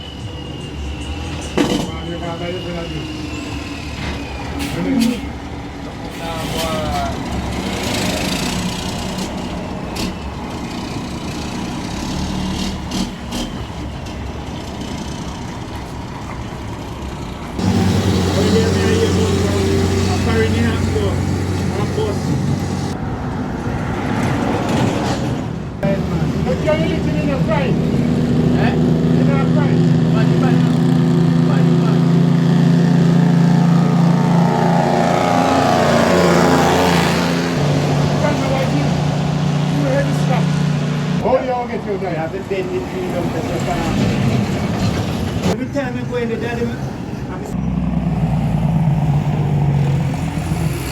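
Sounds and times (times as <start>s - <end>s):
truck diesel engine running: 0.0s - 23.2s, 25.8s - 50.9s
road noise: 0.0s - 50.9s
vehicle passing by: 2.7s - 13.5s, 17.5s - 45.6s, 46.7s - 50.9s
vehicle engine running: 5.1s - 23.0s.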